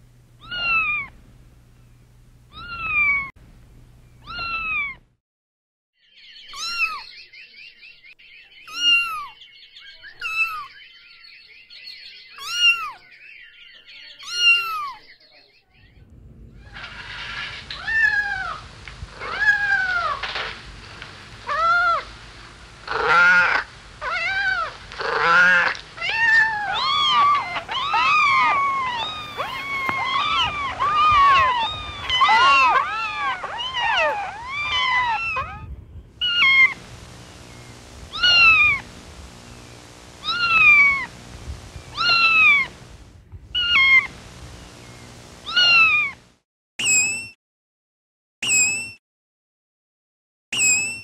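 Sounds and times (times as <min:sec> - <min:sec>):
kittens meowing: 0:00.4 - 0:01.2, 0:02.5 - 0:03.3, 0:04.2 - 0:05.0, 0:06.5 - 0:07.0, 0:08.7 - 0:09.4, 0:10.2 - 0:10.7, 0:12.4 - 0:13.0, 0:14.2 - 0:15.0, 0:17.7 - 0:20.3, 0:22.9 - 0:36.8, 0:38.1 - 0:38.9, 0:40.2 - 0:41.2, 0:41.9 - 0:42.8, 0:43.5 - 0:44.2, 0:45.4 - 0:46.2.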